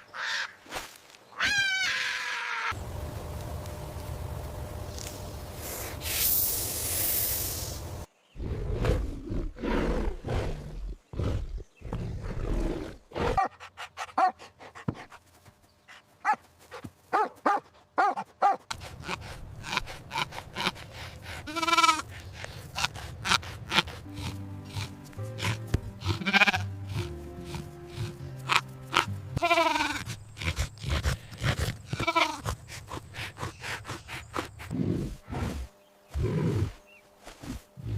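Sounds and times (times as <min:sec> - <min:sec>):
low rough animal sounds: 0:19.0 - 0:36.8
short pitched animal calls: 0:21.5 - 0:22.0
wavering bleat: 0:21.5 - 0:22.1, 0:22.8 - 0:30.5, 0:31.9 - 0:32.6.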